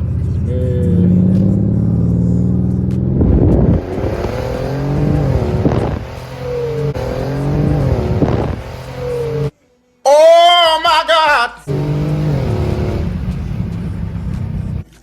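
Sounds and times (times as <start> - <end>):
car engine under full throttle: 0.0 - 9.5, 11.7 - 15.0
exhaust crackle: 0.0 - 9.5, 11.7 - 15.0.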